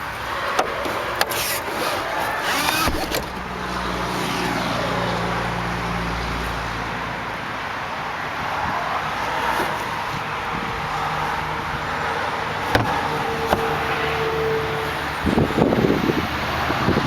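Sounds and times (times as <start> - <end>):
short squeak: 1.3 - 3.4
seat latch click: 2.4 - 3.4, 12.7 - 14.0.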